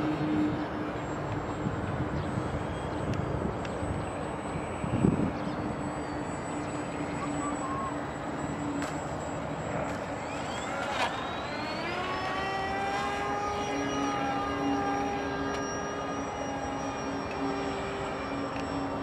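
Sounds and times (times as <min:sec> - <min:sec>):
model plane motor whining: 0:00.0 - 0:19.0
wind noise: 0:01.4 - 0:05.8.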